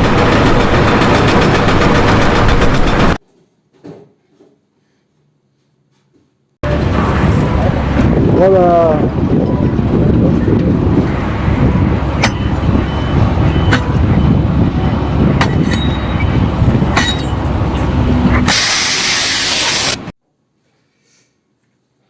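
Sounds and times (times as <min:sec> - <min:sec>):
heavy machinery rumbling: 0:00.0 - 0:03.2, 0:06.6 - 0:20.1
loud hissing release: 0:18.5 - 0:20.1.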